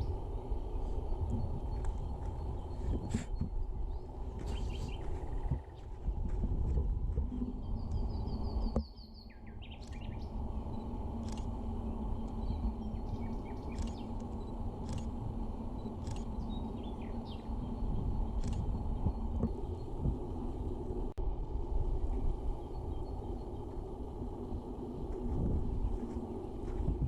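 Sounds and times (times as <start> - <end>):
small birds chirping: 0.0 - 21.0
low outdoor rumble: 0.0 - 27.0
faint clicks: 13.6 - 15.2, 16.0 - 16.5.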